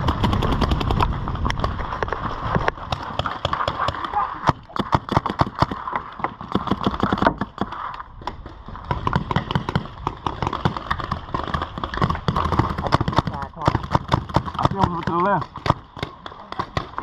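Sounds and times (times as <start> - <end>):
paintball markers firing: 2.7 - 17.0.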